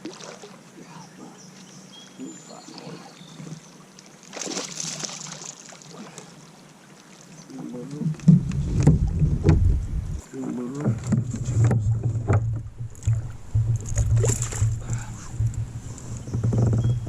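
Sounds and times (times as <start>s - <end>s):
knocks against kayak hull: 8.2s - 10.1s, 10.8s - 15.7s
low rumble: 8.3s - 10.2s, 11.1s - 17.0s.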